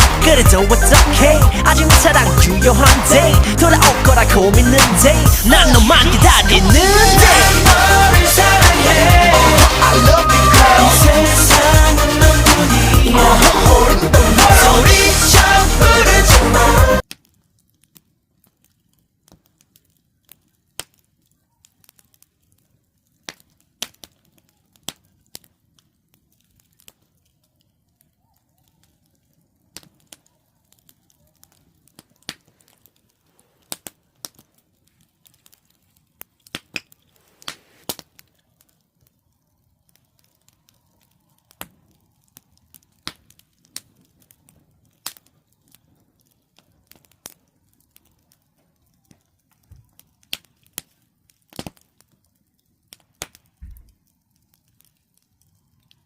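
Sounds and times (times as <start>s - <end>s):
campfire crackling: 0.0s - 56.0s
firewood popping and snapping: 17.0s - 56.0s.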